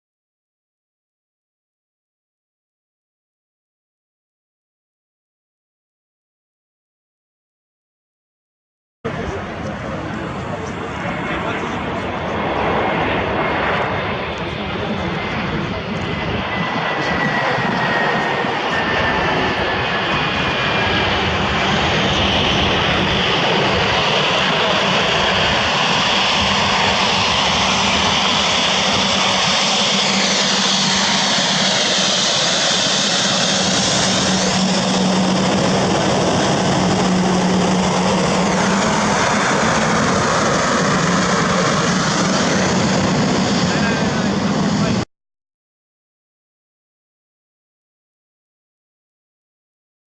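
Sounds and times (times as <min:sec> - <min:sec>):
jet airliner passing: 0:09.1 - 0:45.1.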